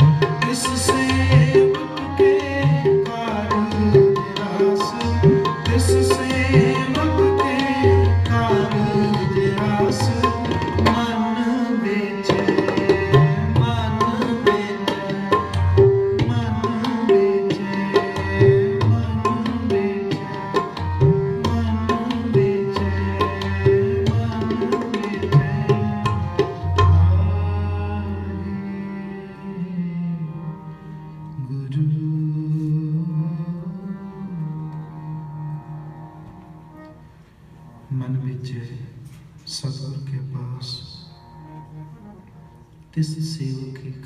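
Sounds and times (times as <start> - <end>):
tabla playing rhythm: 0.0 - 28.4.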